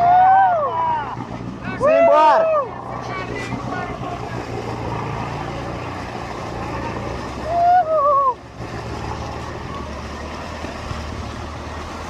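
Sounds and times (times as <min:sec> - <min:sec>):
person yelling: 0:00.0 - 0:02.8, 0:07.4 - 0:08.4
truck engine humming: 0:00.0 - 0:12.0.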